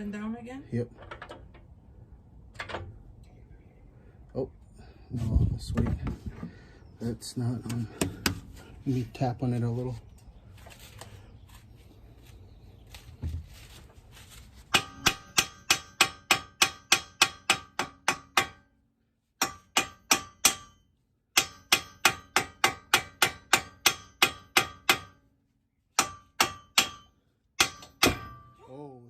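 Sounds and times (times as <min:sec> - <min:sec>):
hammer tapping on steel: 0:14.7 - 0:18.7.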